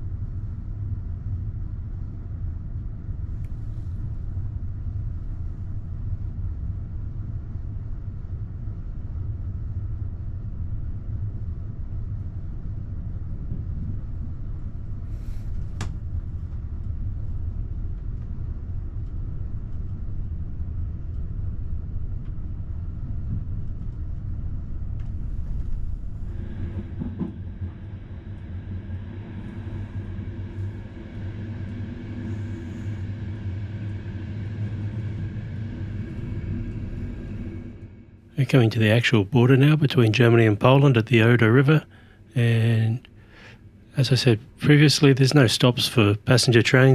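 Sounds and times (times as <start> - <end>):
train rumble inside carriage: 0.0 - 46.9
steady higher tones: 26.2 - 43.0.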